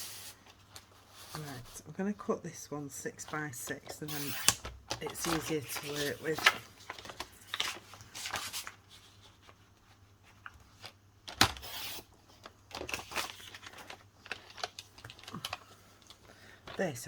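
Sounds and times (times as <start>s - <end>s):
paper rustling: 3.3s - 17.0s
paper being cut: 4.0s - 6.6s, 11.5s - 12.1s.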